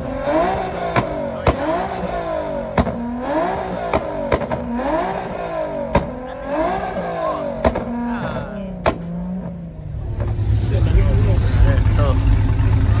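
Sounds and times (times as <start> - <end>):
car engines revving: 0.0 - 13.0
sharp crack: 0.2 - 9.4.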